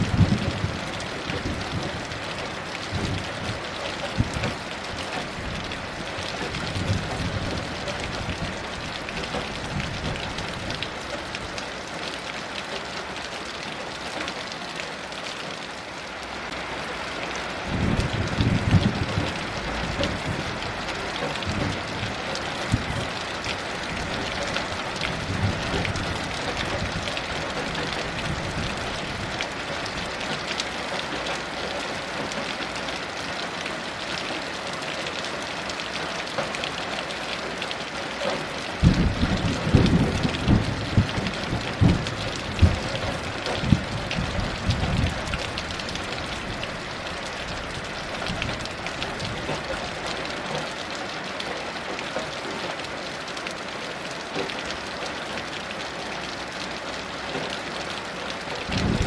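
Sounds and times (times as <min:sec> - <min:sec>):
thunder rumbling: 0:00.0 - 0:04.6, 0:17.6 - 0:30.2, 0:38.8 - 0:46.9, 0:58.6 - 0:59.0
heavy rain falling: 0:00.0 - 0:59.0.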